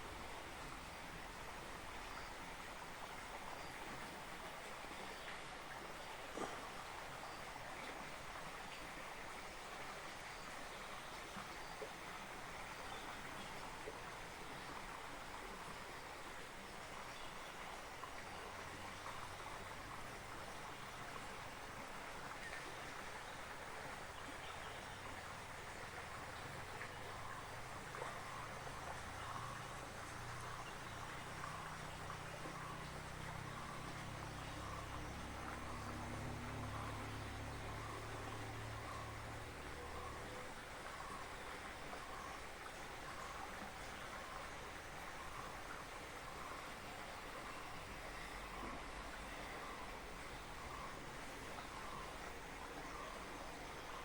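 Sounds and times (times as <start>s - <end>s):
flowing water rushing: 0.0s - 54.0s.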